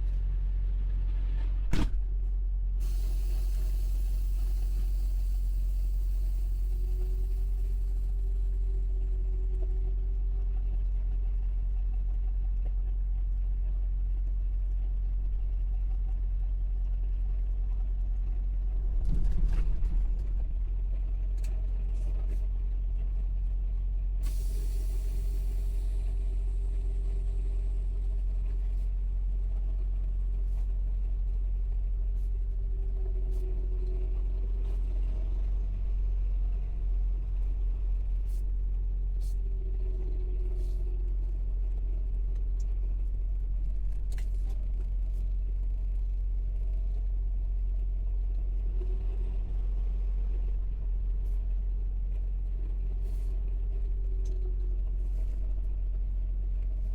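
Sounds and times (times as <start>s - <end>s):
diesel engine droning: 0.0s - 13.8s, 14.8s - 56.9s
brief knock: 1.7s - 2.2s
short air hiss: 2.8s - 7.9s, 24.2s - 26.1s.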